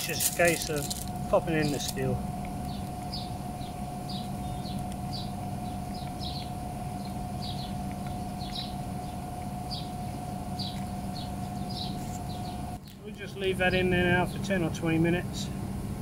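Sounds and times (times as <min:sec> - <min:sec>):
faint constant whine: 0:00.0 - 0:16.0
steady low hum: 0:00.0 - 0:16.0
small bird chirping: 0:02.6 - 0:13.0.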